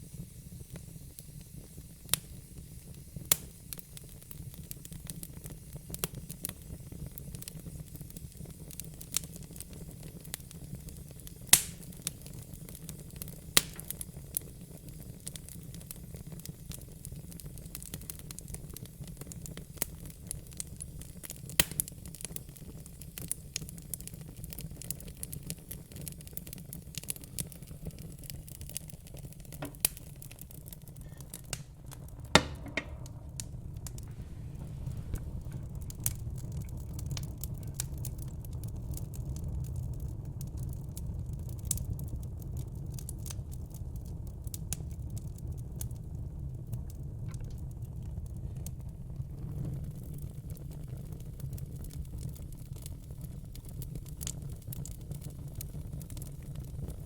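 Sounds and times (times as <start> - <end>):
fire crackling and popping: 0.0 - 57.0
low steady rumble: 29.7 - 40.4.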